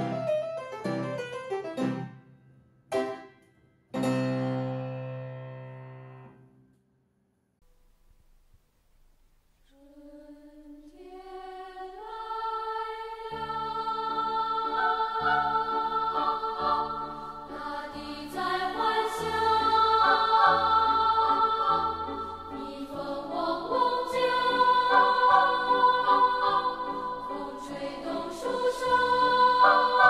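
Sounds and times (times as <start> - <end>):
choir-like voices singing chords: 9.7 - 30.0.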